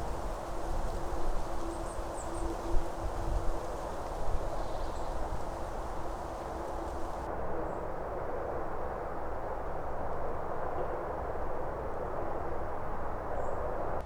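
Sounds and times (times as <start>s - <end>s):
faint steady hum: 0.0s - 7.3s
outdoor rumble and hiss: 0.0s - 14.0s.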